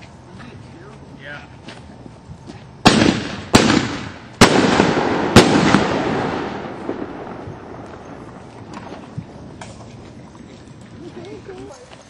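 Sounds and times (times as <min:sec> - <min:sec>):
rumbling echo: 0:02.8 - 0:09.6
fireworks bangs: 0:02.8 - 0:09.9.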